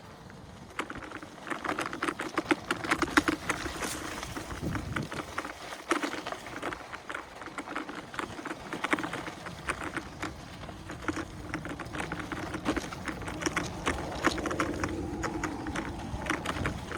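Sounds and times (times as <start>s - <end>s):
tyre crunching on dirt trail: 0.0s - 16.9s
steady hum: 11.0s - 16.9s
low rumble: 12.2s - 16.9s.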